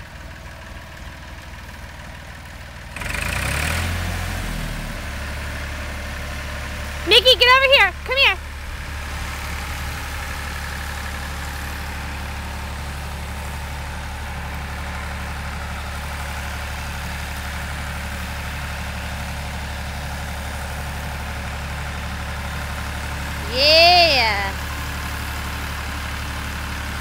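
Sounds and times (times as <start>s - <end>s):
tractor engine running: 5.0s - 23.4s.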